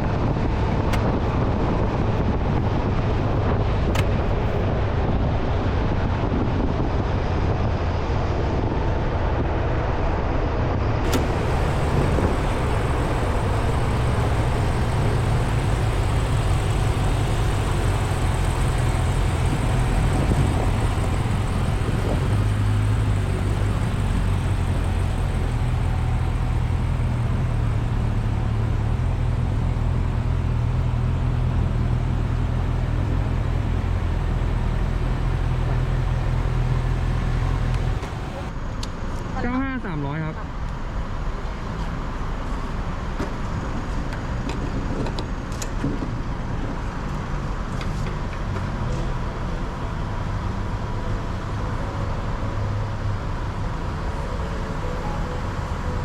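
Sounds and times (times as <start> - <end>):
wind noise on microphone: 0.0 - 26.3
motorcycle engine running: 11.1 - 38.5.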